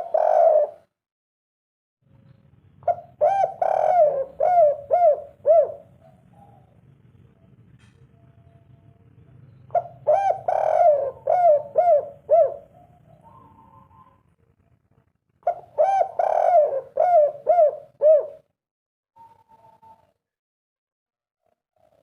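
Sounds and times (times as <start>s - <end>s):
dove cooing: 0.0s - 0.9s, 2.8s - 6.8s, 9.7s - 14.3s, 15.4s - 18.5s.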